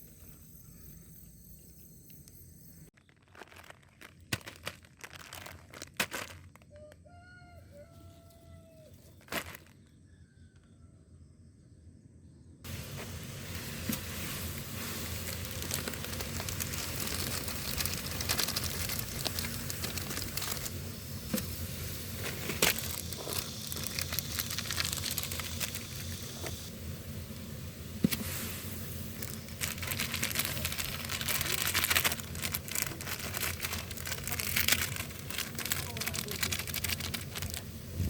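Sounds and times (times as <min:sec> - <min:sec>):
steady hiss: 0:12.7 - 0:38.0
wood fire crackling and popping: 0:12.7 - 0:38.0.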